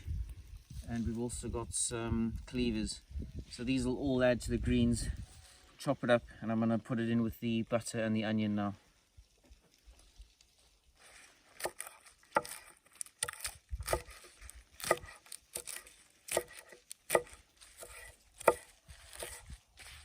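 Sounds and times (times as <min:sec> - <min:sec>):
knife chopping leafy greens: 0:11.5 - 0:20.0.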